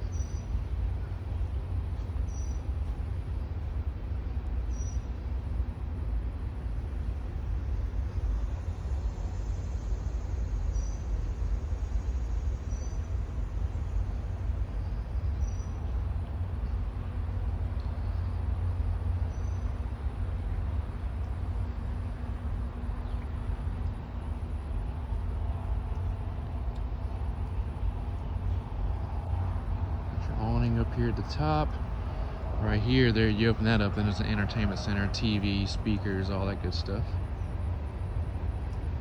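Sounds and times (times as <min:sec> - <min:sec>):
faint steady hum: 0:00.0 - 0:39.0
wind buffeting microphone: 0:13.1 - 0:39.0.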